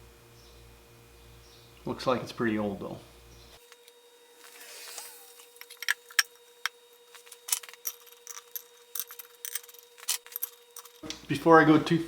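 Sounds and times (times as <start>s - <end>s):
faint steady hum: 0.0s - 12.0s
metal tools clinking: 7.0s - 11.0s.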